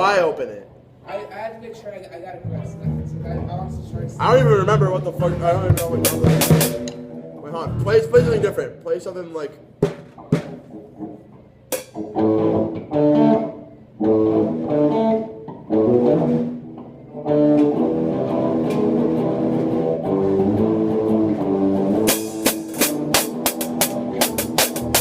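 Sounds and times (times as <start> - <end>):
guitar playing chords: 2.4 - 25.0
sharp drum hits: 5.3 - 8.6, 9.8 - 10.7, 22.0 - 25.0.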